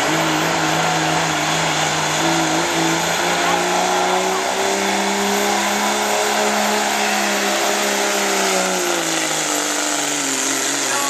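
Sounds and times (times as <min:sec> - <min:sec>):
diesel truck engine at full throttle: 0:00.0 - 0:11.0
high turbo whine: 0:00.0 - 0:11.0.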